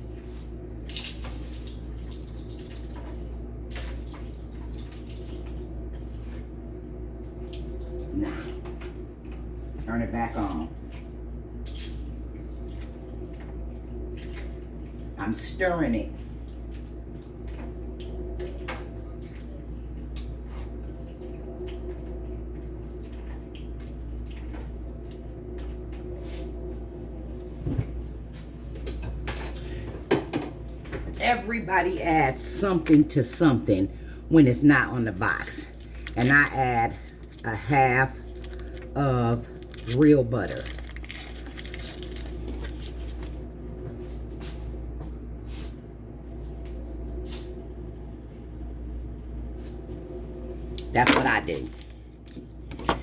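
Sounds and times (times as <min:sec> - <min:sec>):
low hum: 0:16.0 - 0:53.0.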